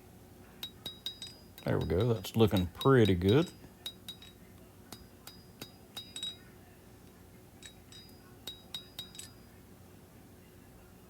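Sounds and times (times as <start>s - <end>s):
hammer tapping on anvil: 0.6s - 6.4s, 7.6s - 9.5s.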